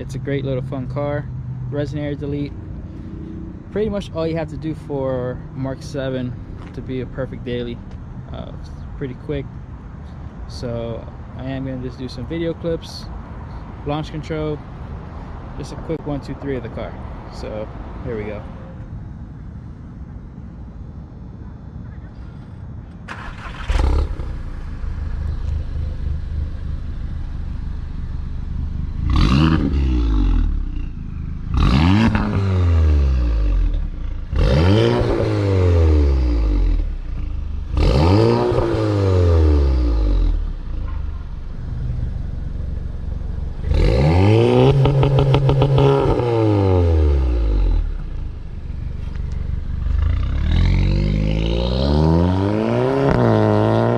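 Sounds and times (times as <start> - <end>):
car engine idling: 18.9 - 32.3, 39.6 - 51.5
car engine starting: 22.2 - 53.9
car engine revving: 23.1 - 53.9.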